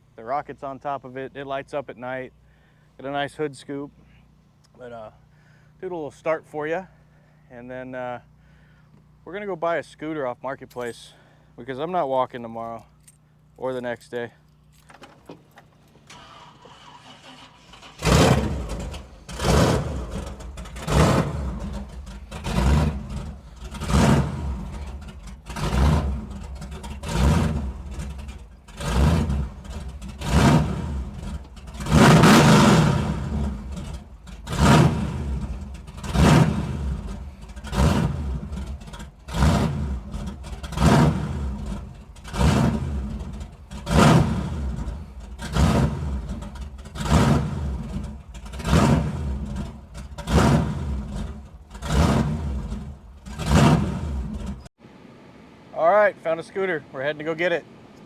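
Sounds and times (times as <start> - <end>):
car engine starting: 12.6 - 55.2
engine revving: 16.1 - 54.7.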